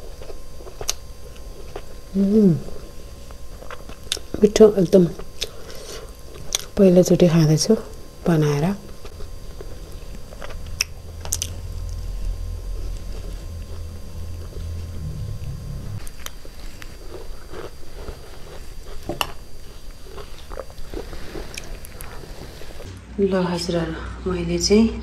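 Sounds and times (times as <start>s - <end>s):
chewing and biting: 0.0s - 2.1s, 3.2s - 4.4s, 5.2s - 6.8s, 8.8s - 12.0s, 16.0s - 22.9s
low rumble: 9.2s - 16.1s.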